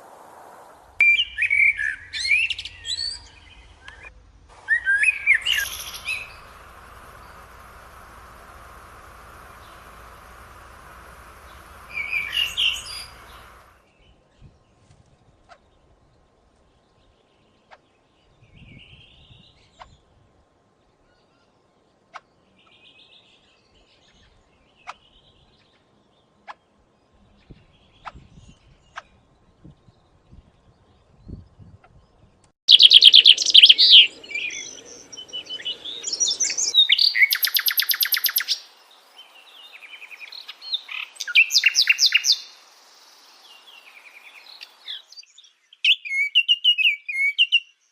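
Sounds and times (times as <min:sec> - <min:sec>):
steady hiss: 0:00.0 - 0:01.2, 0:03.3 - 0:13.8, 0:32.7 - 0:45.0
songbirds chirping: 0:00.8 - 0:47.9.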